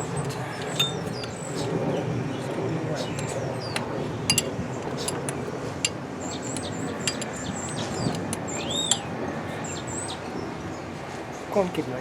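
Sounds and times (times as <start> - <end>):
small birds chirping: 0.0 - 5.5, 6.2 - 11.8
metallic clicks of hand tools: 3.2 - 9.0.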